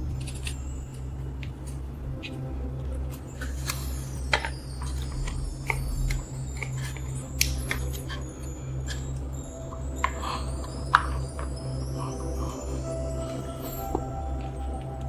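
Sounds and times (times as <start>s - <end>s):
steady low hum: 0.0s - 15.0s
metal tools clicking and tapping: 3.1s - 12.3s.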